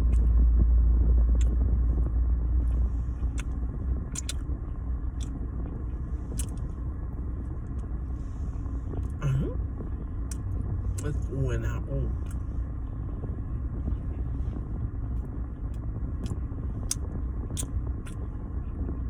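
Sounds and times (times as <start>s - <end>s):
lip smacks and clicks: 0.0s - 0.4s, 1.3s - 5.4s, 6.2s - 6.8s, 10.3s - 11.3s, 12.2s - 12.4s, 15.2s - 18.3s
car rumble: 0.0s - 19.0s
mouth sounds eating: 2.7s - 4.4s.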